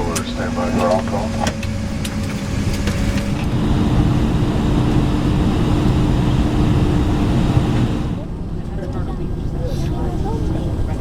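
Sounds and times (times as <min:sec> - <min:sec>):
airplane cabin hum: 0:00.0 - 0:11.0.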